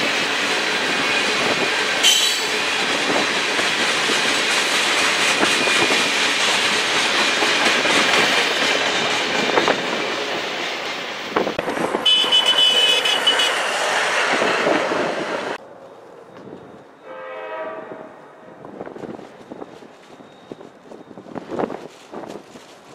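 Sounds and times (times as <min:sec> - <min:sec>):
freight train clattering on rails: 0:00.0 - 0:15.6
faint train horn: 0:12.0 - 0:14.7, 0:16.6 - 0:18.6.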